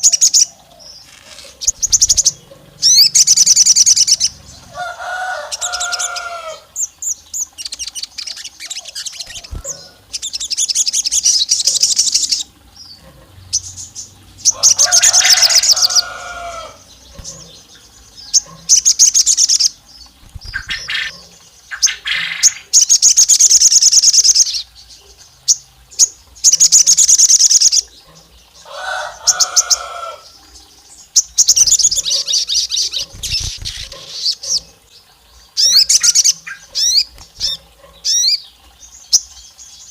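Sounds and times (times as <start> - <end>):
low slurred bird notes: 0.0 - 22.8
songbird chirping trills: 0.0 - 39.9.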